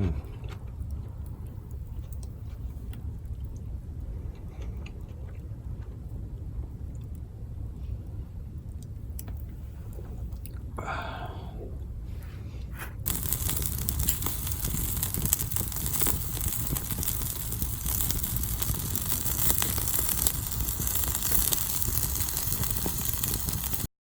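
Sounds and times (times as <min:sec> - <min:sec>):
low rumble: 0:00.0 - 0:23.9
campfire crackling and popping: 0:00.4 - 0:03.7, 0:13.0 - 0:23.9.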